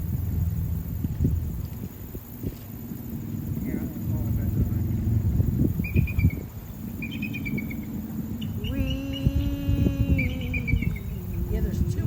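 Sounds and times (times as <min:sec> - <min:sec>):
steady humming tone: 0:00.0 - 0:12.0
wind on microphone: 0:00.0 - 0:12.0
eagle chattering call: 0:03.2 - 0:11.9.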